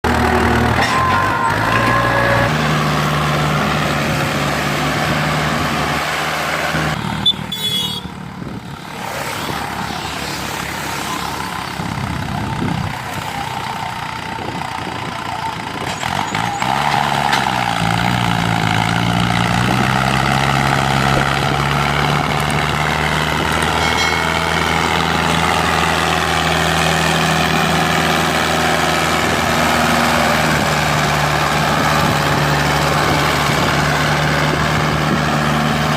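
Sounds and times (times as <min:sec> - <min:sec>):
tractor engine under load: 0:00.0 - 0:35.9.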